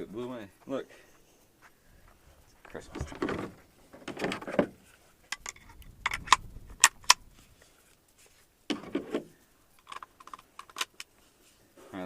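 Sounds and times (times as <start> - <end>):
person speaking: 2.3 - 3.6
sharp clicks and knocks: 2.6 - 7.3, 8.7 - 11.1.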